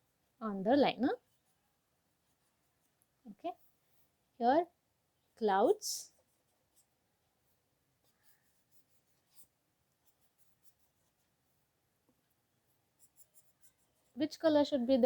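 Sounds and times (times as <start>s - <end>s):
pen scratching on paper: 1.1s - 4.2s, 6.1s - 11.7s, 12.7s - 14.2s.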